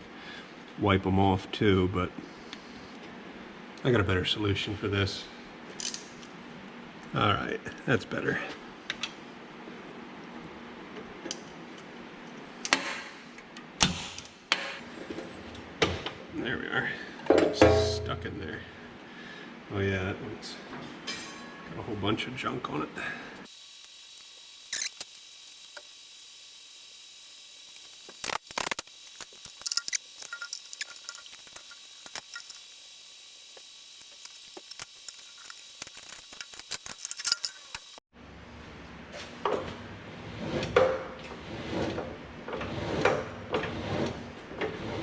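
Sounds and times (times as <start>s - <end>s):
metallic tool clicks and clinks: 36.8s - 37.8s.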